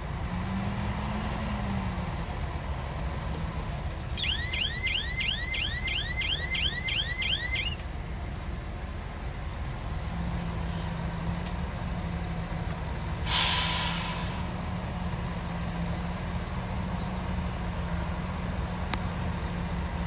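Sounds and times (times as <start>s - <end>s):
diesel earthmoving machinery running: 0.0s - 20.0s
air brakes hissing: 13.2s - 14.6s.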